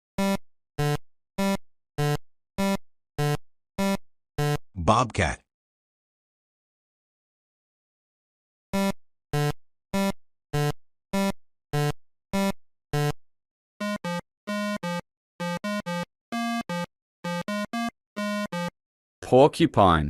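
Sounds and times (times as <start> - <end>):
synthesizer notes: 13.8 - 18.7.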